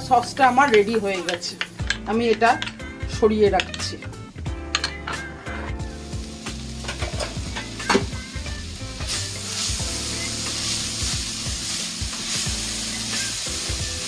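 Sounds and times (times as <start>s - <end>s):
vegetables sizzling in oil: 0.0s - 14.0s
spoon scraping pan: 0.2s - 5.8s, 6.8s - 8.1s.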